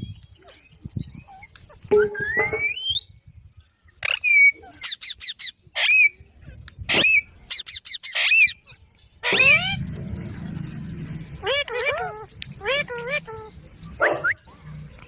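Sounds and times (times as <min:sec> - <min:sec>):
parrot screeching and squawking: 0:04.0 - 0:06.2, 0:06.9 - 0:08.6, 0:09.2 - 0:09.9, 0:11.1 - 0:13.6.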